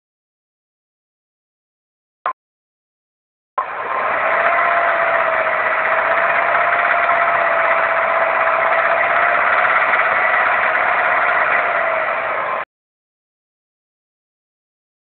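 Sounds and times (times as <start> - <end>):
petrol engine running with knock: 3.6 - 12.6.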